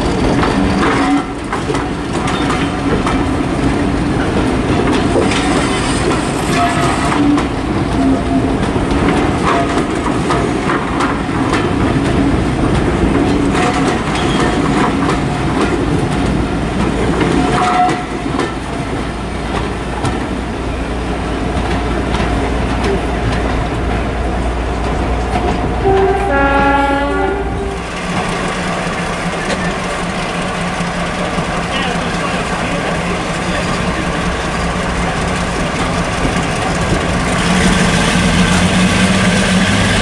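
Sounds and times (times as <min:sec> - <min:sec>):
train rumble: 0:00.0 - 0:40.0
train wheels clicking over rail joints: 0:00.0 - 0:40.0
train horn: 0:17.5 - 0:18.2, 0:25.8 - 0:27.9.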